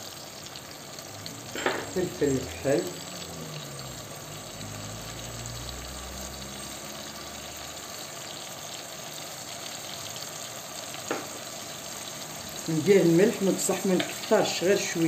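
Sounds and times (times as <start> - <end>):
tomato and garlic sizzling in oil: 0.0 - 15.0.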